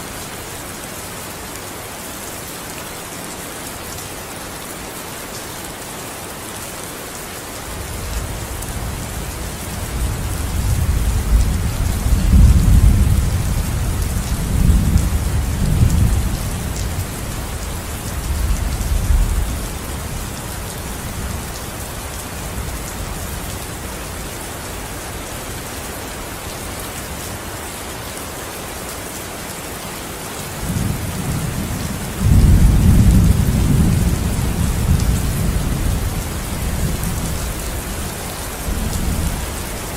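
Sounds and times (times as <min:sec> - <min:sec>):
steady rainfall: 0:00.0 - 0:39.9
rolling thunder: 0:30.6 - 0:37.9.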